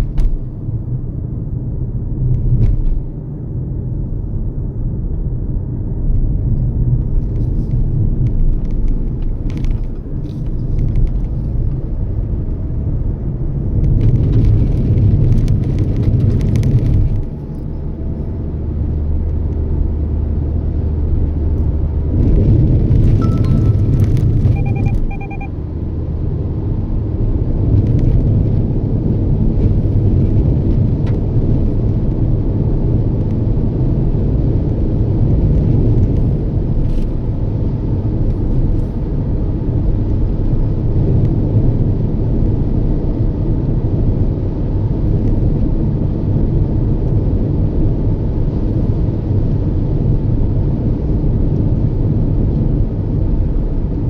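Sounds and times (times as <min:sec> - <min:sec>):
car interior road rumble: 0:00.0 - 0:54.0
short electronic beeps: 0:23.2 - 0:25.6.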